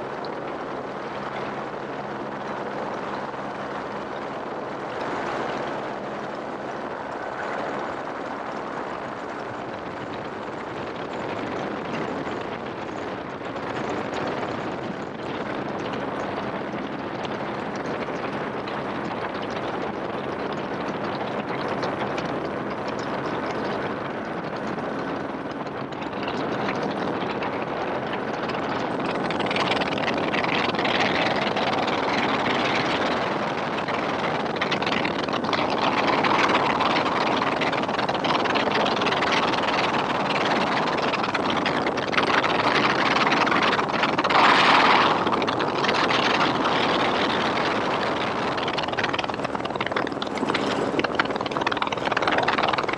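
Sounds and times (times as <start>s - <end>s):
helicopter rotor and engine: 0.0s - 52.9s.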